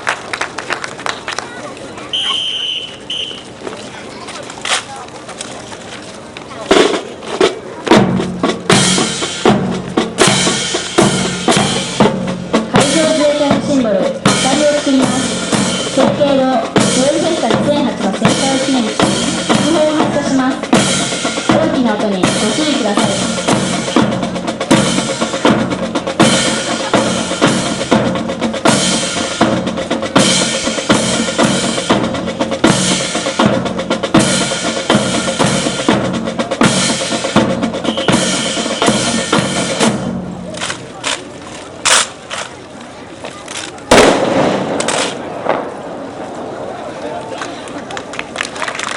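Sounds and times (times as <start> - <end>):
drum kit beat: 6.7 - 40.6.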